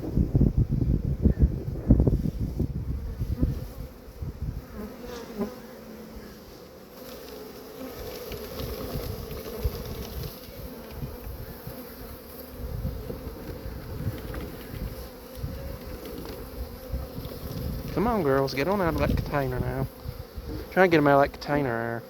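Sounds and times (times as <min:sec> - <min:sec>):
wind rumble on microphone: 0:00.0 - 0:04.9, 0:08.0 - 0:20.7
bees buzzing: 0:02.6 - 0:22.0.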